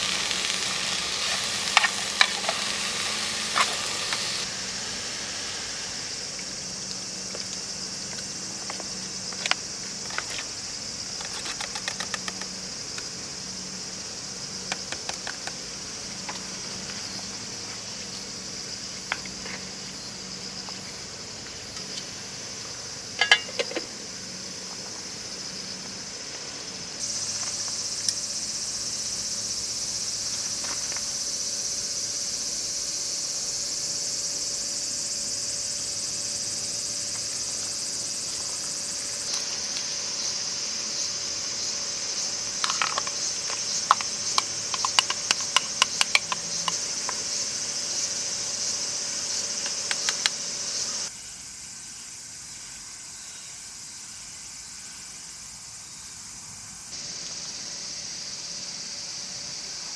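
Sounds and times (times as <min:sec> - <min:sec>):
crickets and insects chirring: 0:00.0 - 0:59.9.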